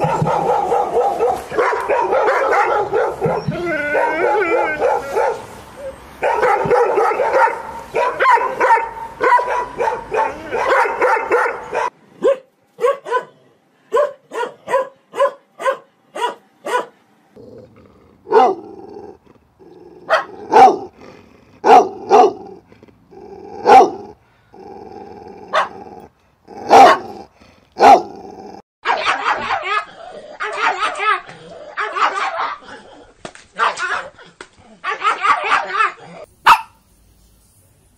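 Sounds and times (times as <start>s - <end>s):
dogs barking: 0.0s - 17.0s, 18.3s - 19.0s, 20.0s - 21.0s, 21.6s - 22.6s, 23.6s - 24.2s, 25.5s - 28.2s, 28.8s - 32.7s, 33.6s - 36.8s.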